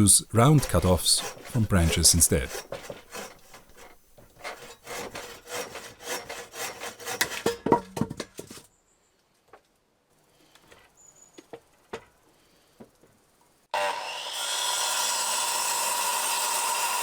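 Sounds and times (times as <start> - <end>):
hand saw cutting wood: 0.4 - 7.7, 13.8 - 17.0.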